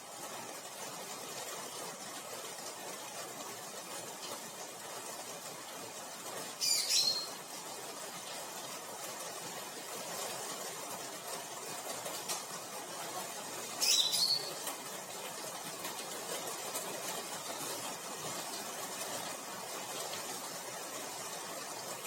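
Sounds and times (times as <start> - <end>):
background hiss: 0.0 - 22.0
bird chirp: 6.6 - 7.4, 13.8 - 14.6.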